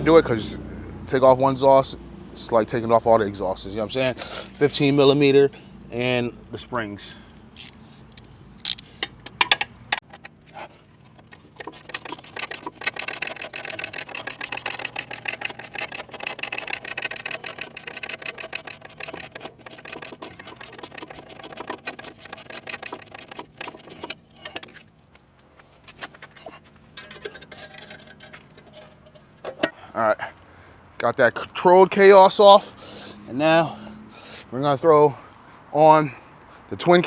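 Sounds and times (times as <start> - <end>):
ratchet wrench clicking: 7.6 - 10.1, 11.4 - 24.2.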